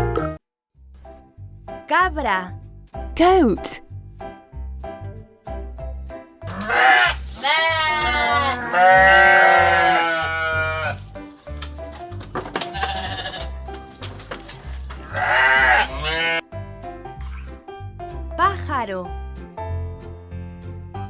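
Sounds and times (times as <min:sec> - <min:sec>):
background music with steady beat: 0:00.0 - 0:07.2
goat bleating: 0:06.5 - 0:11.0, 0:12.7 - 0:13.5, 0:15.0 - 0:16.4.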